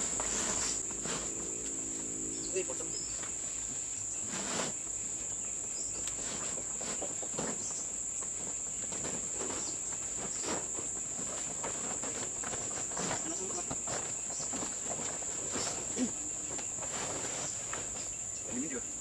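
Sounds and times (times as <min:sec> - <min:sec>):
insects droning: 0:00.0 - 0:19.0
knocks and rustles: 0:05.6 - 0:18.7.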